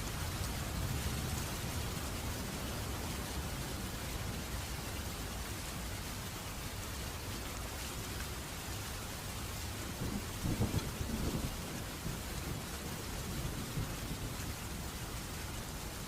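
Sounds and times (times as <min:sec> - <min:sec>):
steady rainfall: 0:00.0 - 0:16.0
thunder rumbling and cracking: 0:10.0 - 0:14.2.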